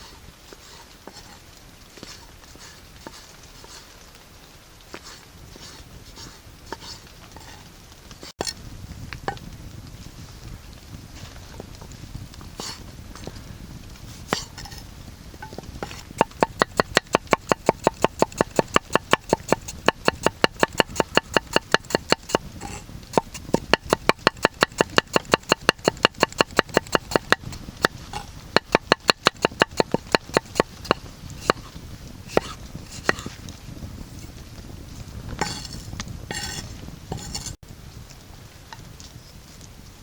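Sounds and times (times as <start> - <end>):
knife chopping on cutting board: 16.2 - 22.4, 23.2 - 28.0, 28.6 - 31.6, 32.3 - 33.3, 35.4 - 35.7, 36.3 - 36.6.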